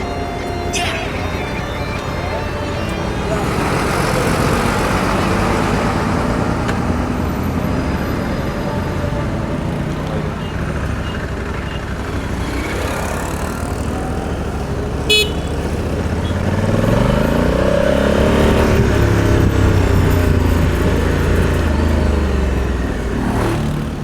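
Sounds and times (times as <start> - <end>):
vehicle horn toot: 0.0 - 5.8, 15.0 - 16.5
vehicle engine passing: 0.0 - 24.0.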